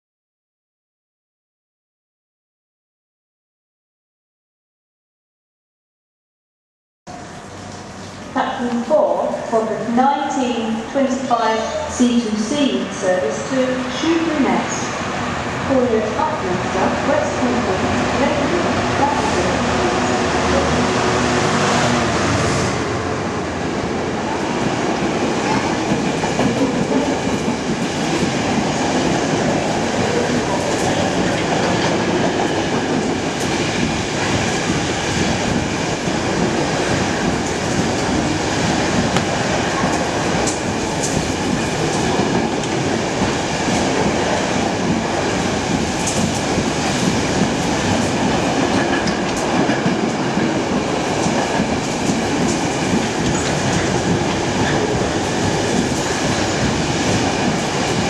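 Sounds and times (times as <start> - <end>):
diesel locomotive passing: 7.1 - 58.0.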